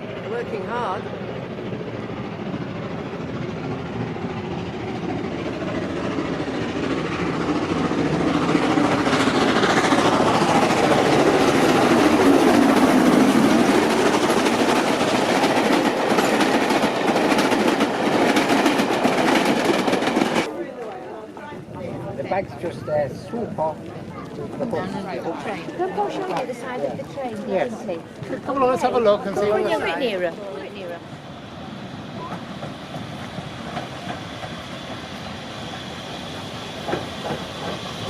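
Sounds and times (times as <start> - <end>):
steam locomotive working hard: 0.0 - 20.6, 21.2 - 38.0
train wheels clicking over rail joints: 1.7 - 20.5, 31.9 - 38.0.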